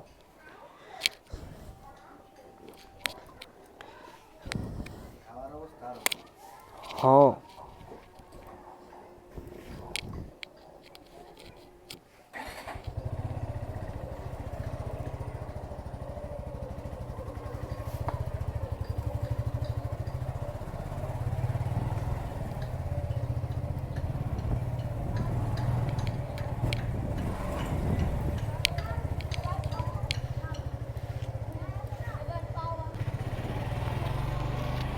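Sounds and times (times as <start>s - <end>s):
motorcycle engine: 12.4s - 34.9s.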